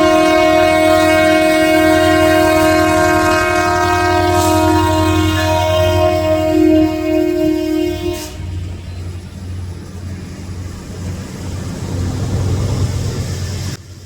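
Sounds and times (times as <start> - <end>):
locomotive horn chord: 0.0 - 9.1
train rumbling: 0.0 - 14.0.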